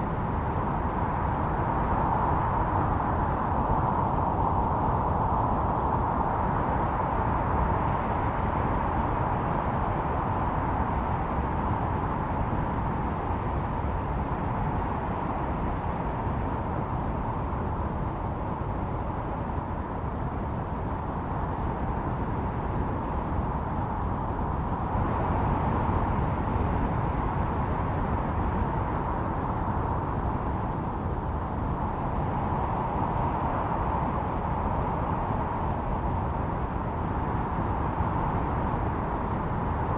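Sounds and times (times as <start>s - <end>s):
snowstorm wind howling: 0.0s - 39.9s.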